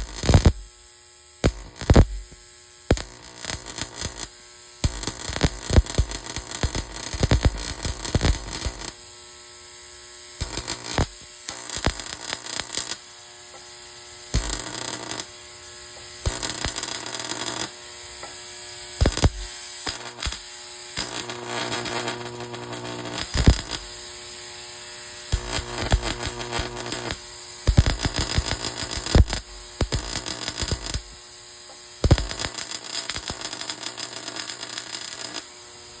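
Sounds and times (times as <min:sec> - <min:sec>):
crackling electrical arcing: 0:00.0 - 0:36.0
electrical hum: 0:21.0 - 0:31.2.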